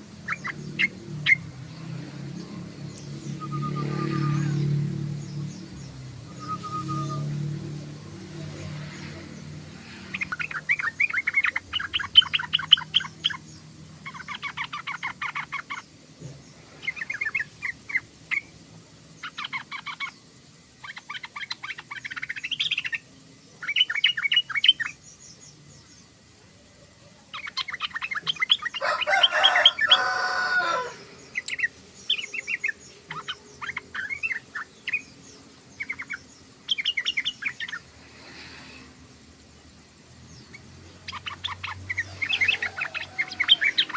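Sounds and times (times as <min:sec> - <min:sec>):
bulbul twittering: 0:02.9 - 0:15.9.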